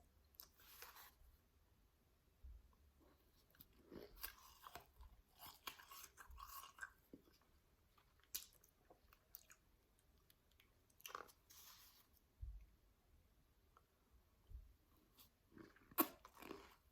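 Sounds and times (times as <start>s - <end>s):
chewing shaved ice crunches: 3.6s - 9.6s, 15.5s - 16.9s.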